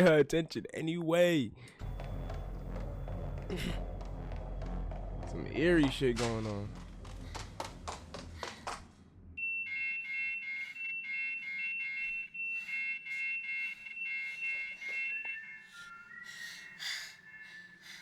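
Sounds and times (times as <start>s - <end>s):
electronic two-tone alarm beeping: 9.4s - 18.0s.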